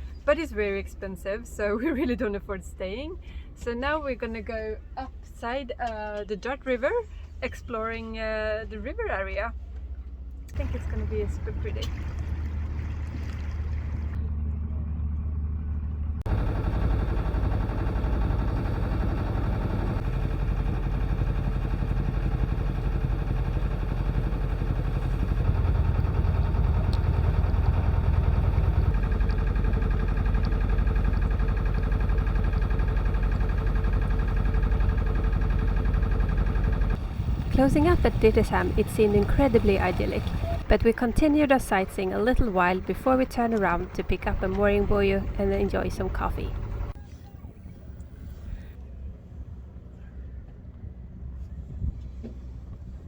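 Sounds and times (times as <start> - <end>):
boat engine running: 9.5 - 48.7.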